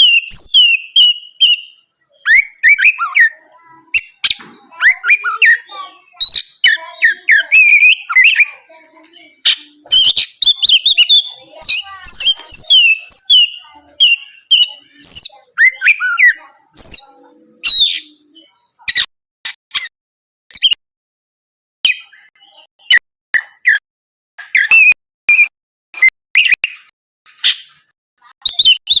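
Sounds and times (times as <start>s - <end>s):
bird singing whistles and chirps: 0.0s - 8.8s, 9.4s - 18.5s, 24.5s - 29.0s.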